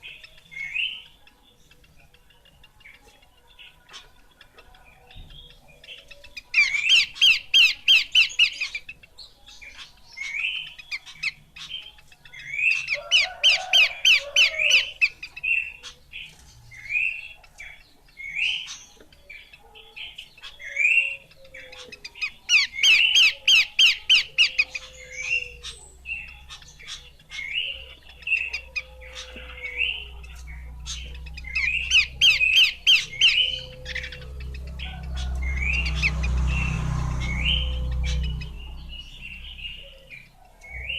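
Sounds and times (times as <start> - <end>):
babbler calling rapid notes: 20.4 - 40.9
single rising bird notes: 31.1 - 40.9.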